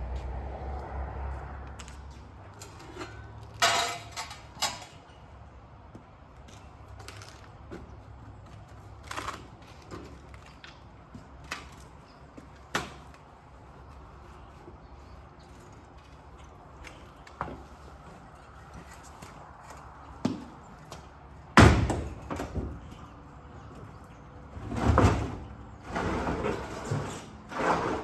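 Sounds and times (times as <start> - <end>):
hand tools and metal clanking: 1.8 - 5.4.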